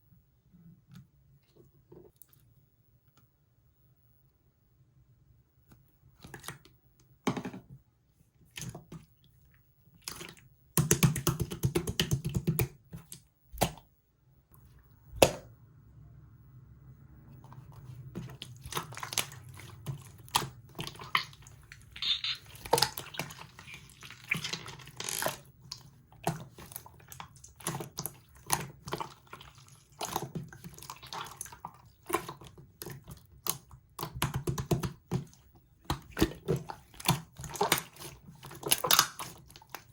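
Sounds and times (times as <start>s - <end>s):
slime squishing: 8.4s - 13.9s, 17.4s - 39.9s
slime clicking and popping: 21.0s - 23.8s.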